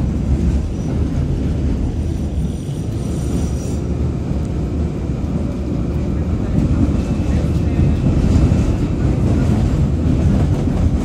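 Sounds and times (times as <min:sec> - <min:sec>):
train low rumble: 0:00.0 - 0:11.0
faint high squeal: 0:02.4 - 0:03.8.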